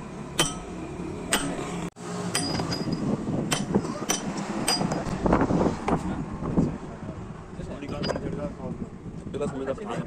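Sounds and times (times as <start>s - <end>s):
hammer striking metal: 0.3s - 5.2s.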